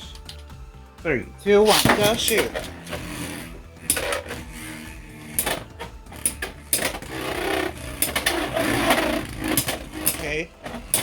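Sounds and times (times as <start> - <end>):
whir of spinning tops: 2.4 - 11.0.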